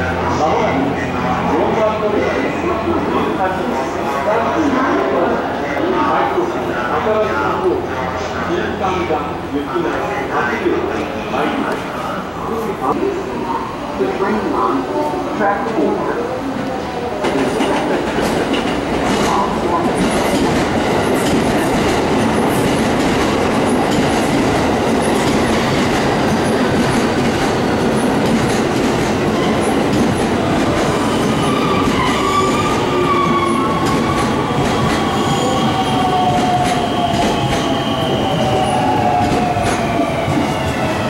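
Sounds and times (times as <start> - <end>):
train wheels rumbling on rail: 13.7 - 41.0.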